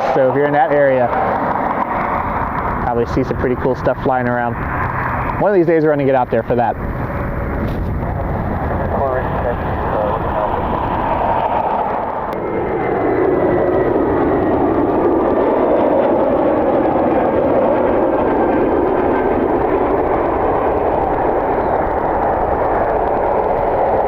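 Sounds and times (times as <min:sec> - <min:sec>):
faint high whine: 0:00.0 - 0:24.0
jet engines running: 0:00.0 - 0:24.0.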